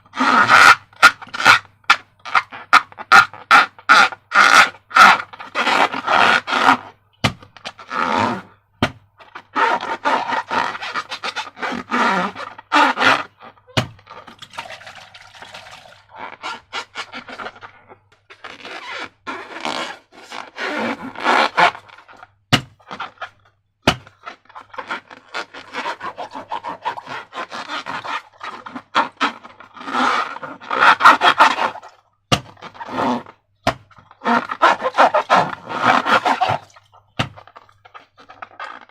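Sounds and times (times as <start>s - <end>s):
slime crackling and scraping: 9.3s - 38.9s.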